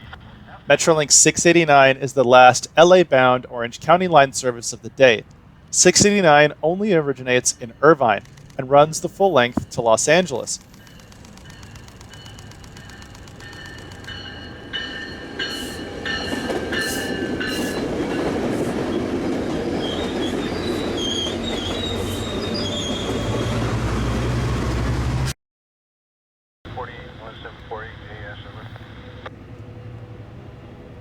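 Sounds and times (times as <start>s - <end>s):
passing train rumble: 0.0s - 25.3s, 26.7s - 31.0s
train wheels squealing on rails: 10.6s - 24.9s.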